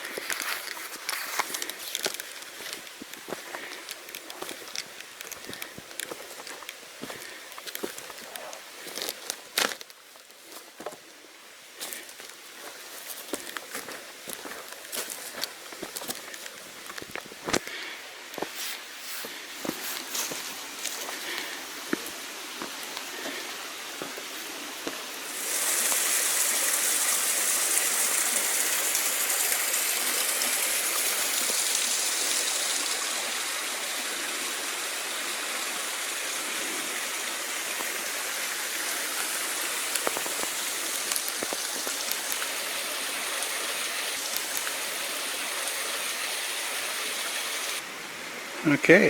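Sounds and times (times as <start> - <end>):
stream water rushing: 19.5 - 49.0.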